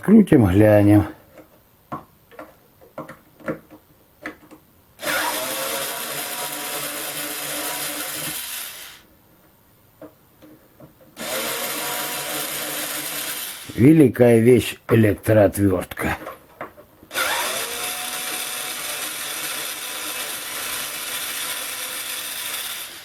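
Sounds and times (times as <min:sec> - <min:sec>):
handling clicks and knocks: 0:01.3 - 0:04.7
electric screwdriver running: 0:05.0 - 0:09.0, 0:11.2 - 0:13.8, 0:17.1 - 0:23.0.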